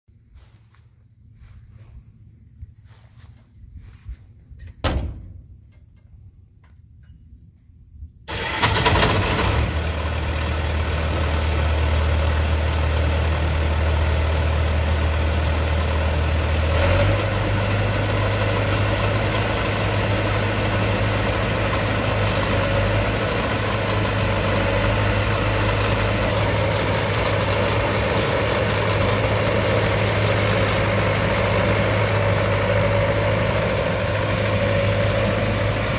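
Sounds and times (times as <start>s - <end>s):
diesel engine starting and idling: 8.3s - 35.9s.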